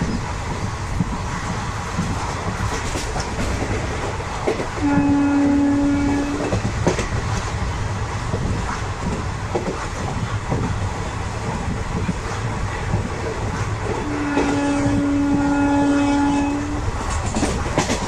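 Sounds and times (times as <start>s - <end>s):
train rumbling with wheel clicks: 0.0s - 18.0s
train horn: 4.8s - 6.6s, 14.0s - 16.9s.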